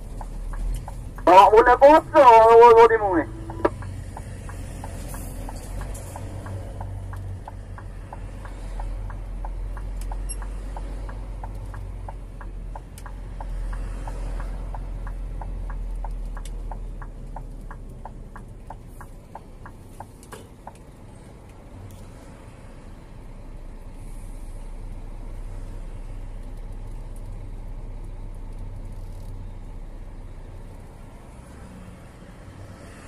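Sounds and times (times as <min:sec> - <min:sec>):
diesel truck engine humming: 0:00.0 - 0:21.8
light ticking: 0:03.4 - 0:21.0.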